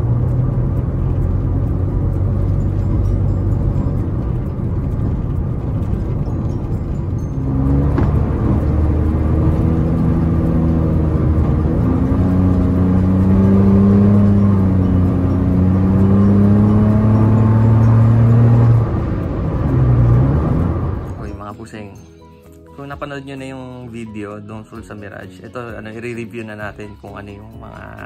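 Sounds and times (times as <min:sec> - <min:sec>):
car engine and exhaust droning: 0:00.0 - 0:21.5.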